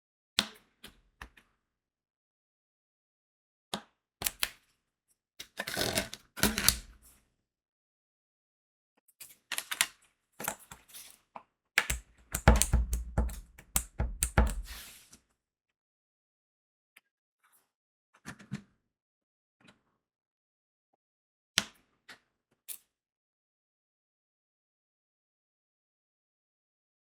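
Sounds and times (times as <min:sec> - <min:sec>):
dull knocks: 0:12.4 - 0:14.7.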